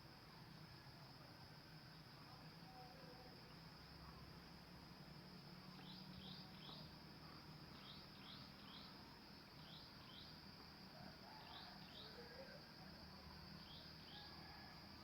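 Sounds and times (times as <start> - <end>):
insects trilling: 5.5 - 15.0.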